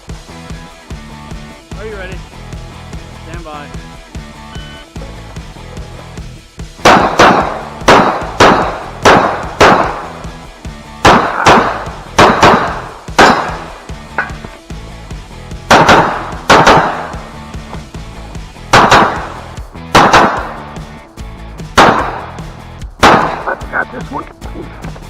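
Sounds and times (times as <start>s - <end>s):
background music: 0.0s - 25.0s
pistol shots: 6.8s - 10.3s, 11.0s - 14.4s, 15.7s - 17.3s, 18.6s - 20.7s, 21.8s - 23.6s.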